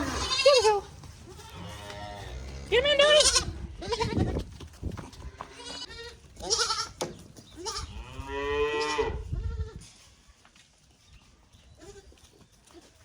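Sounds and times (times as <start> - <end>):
calf mooing: 0.0 - 4.3, 7.6 - 9.8.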